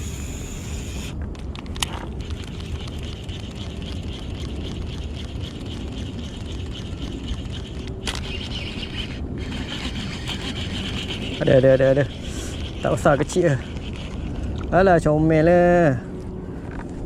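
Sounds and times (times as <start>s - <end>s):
fishing reel whirring: 0.0s - 1.2s, 1.8s - 15.7s
wind on microphone: 0.0s - 17.0s
sharp clicks: 1.4s - 11.4s.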